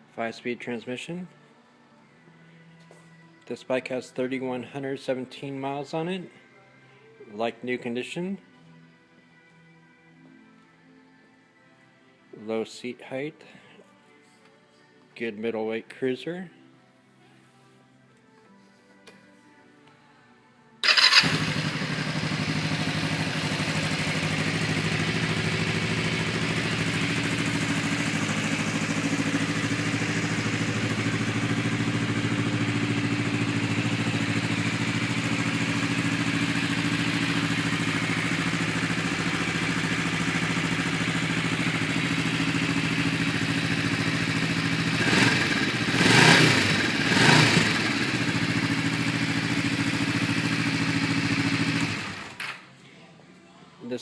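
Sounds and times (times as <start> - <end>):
engine revving: 20.8 - 26.6, 44.8 - 48.6
motorcycle engine idling: 20.9 - 52.4.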